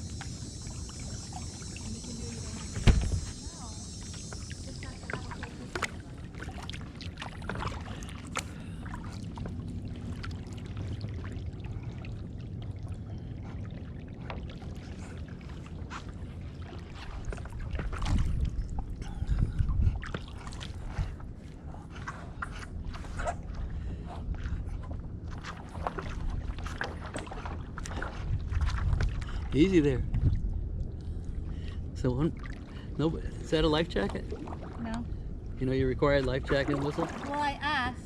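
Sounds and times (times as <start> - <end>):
paddle splashing water: 0.0 - 31.7, 32.3 - 35.0, 36.1 - 37.9
low rumble: 0.0 - 38.0.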